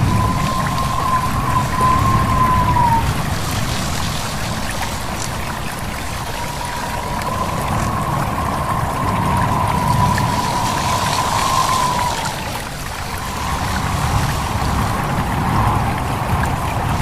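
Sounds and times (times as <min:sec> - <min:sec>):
high whistle-like tone: 0:00.0 - 0:03.2, 0:06.2 - 0:15.8
stream water babbling: 0:00.0 - 0:17.0
wind through leaves: 0:00.0 - 0:17.0.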